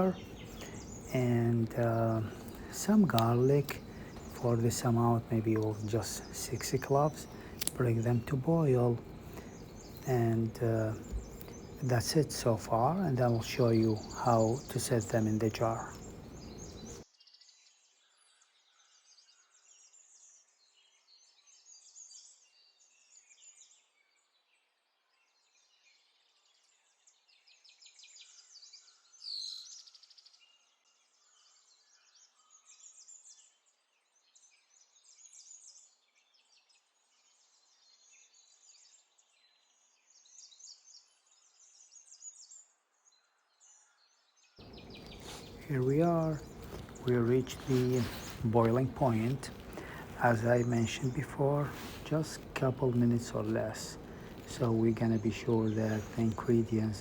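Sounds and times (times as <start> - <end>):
faint bird chirps: 0.0 - 19.7, 43.7 - 57.0.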